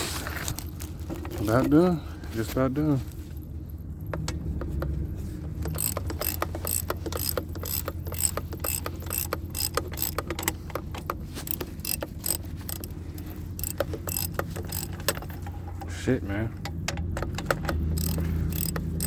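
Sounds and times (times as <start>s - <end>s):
ratchet wrench clicking: 4.1s - 15.9s, 16.6s - 19.0s.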